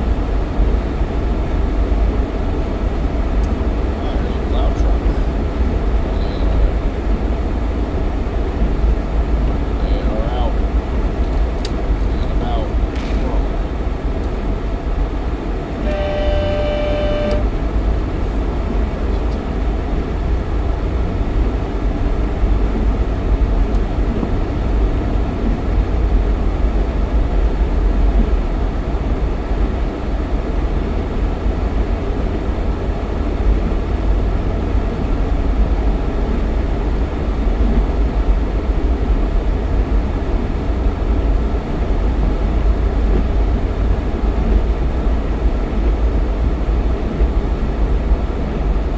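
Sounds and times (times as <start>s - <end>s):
road and engine rumble: 0.0s - 48.9s
car horn tone: 15.7s - 18.5s.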